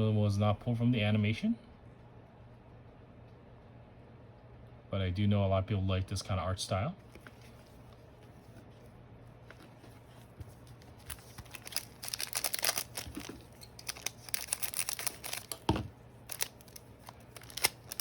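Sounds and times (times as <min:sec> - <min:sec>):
steady low hum: 0:00.0 - 0:18.0
foil pack crinkling and tearing: 0:10.8 - 0:18.0.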